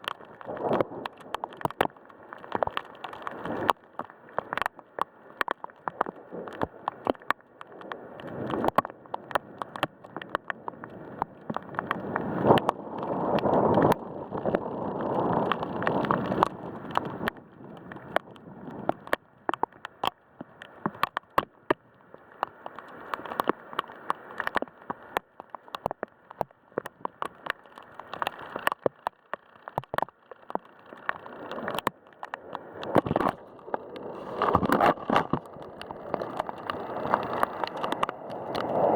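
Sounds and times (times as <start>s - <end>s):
raindrops tapping near microphone: 0.0s - 38.9s
wind: 0.0s - 38.9s.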